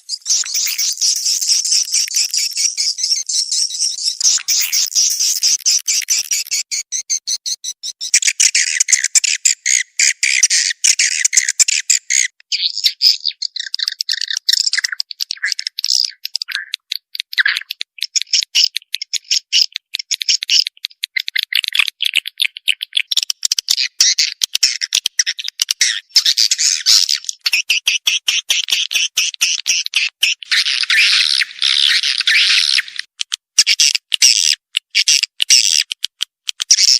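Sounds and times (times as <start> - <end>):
swiftlets twittering: 0.0 - 8.2.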